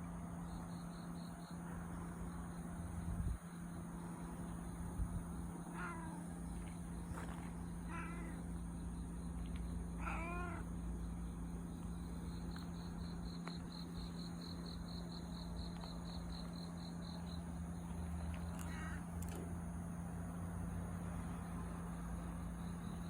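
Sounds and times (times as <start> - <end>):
cat meowing: 5.7 - 6.2, 7.9 - 8.4, 10.0 - 10.7.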